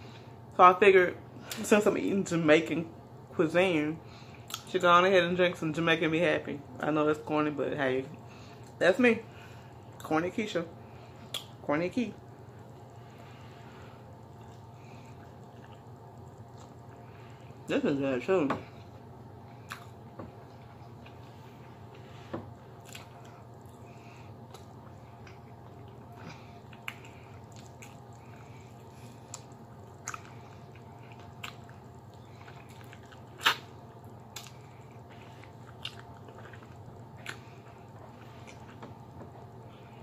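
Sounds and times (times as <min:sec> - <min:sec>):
low steady hum: 0:00.0 - 0:40.0
wet mouth clicks and smacks: 0:11.3 - 0:11.5, 0:32.8 - 0:33.7
chewing and biting meat: 0:19.6 - 0:21.2, 0:24.4 - 0:39.1.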